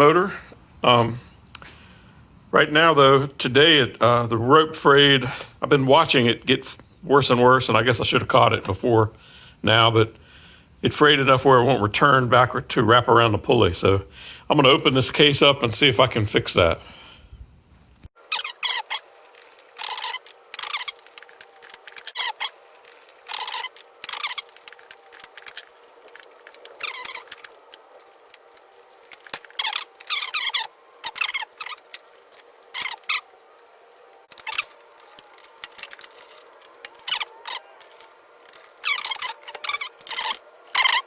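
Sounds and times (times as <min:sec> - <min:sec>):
metallic clicking and squeaking: 0:18.2 - 0:41.0.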